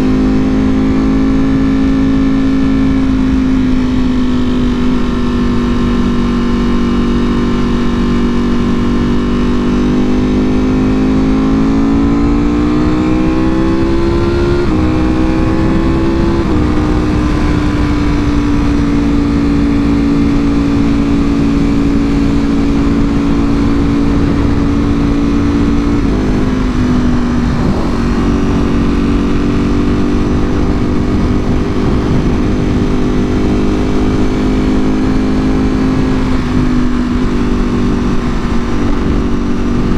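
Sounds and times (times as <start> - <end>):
motorcycle engine revving: 0.0 - 39.9
wind rushing: 11.8 - 39.9.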